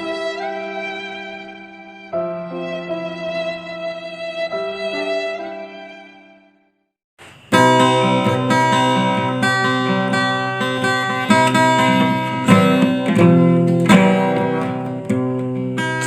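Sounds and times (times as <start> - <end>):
acoustic guitar chords ringing: 7.2 - 16.0.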